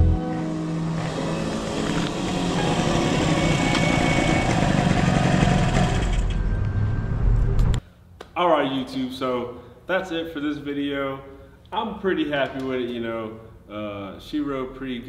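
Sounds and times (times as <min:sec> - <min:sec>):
motorcycle engine running and idling: 0:01.6 - 0:06.3.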